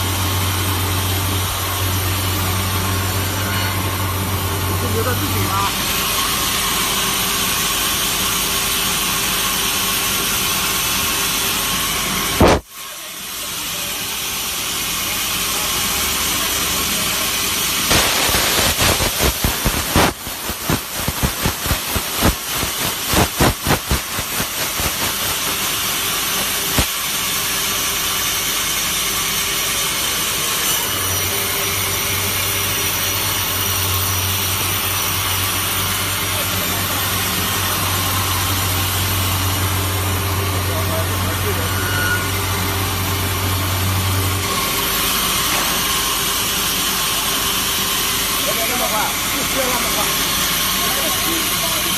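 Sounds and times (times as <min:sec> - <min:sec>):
sawmill machine hissing: 0:00.0 - 0:51.9.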